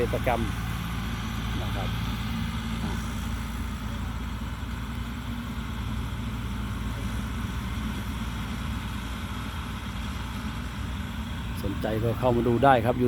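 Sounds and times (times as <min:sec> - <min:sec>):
combine harvester engine drone: 0:00.0 - 0:13.0.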